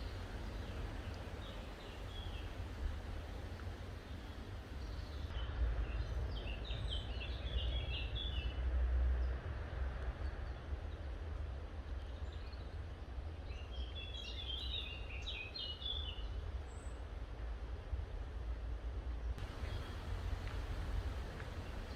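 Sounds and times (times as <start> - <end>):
steady low rumble: 0.0 - 5.3, 19.4 - 21.9
songbird singing choppy notes: 0.0 - 5.4, 19.4 - 21.9.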